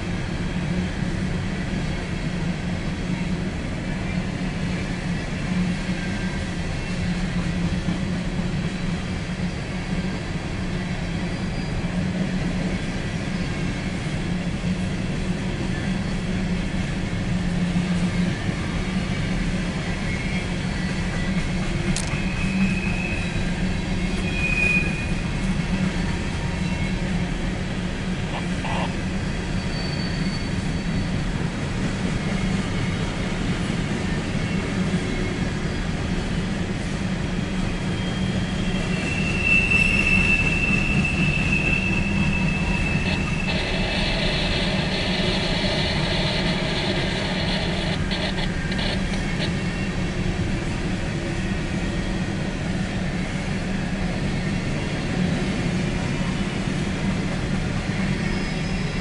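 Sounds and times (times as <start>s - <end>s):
high wheel squeals: 22.1s - 27.1s, 29.5s - 31.3s, 37.9s - 49.9s.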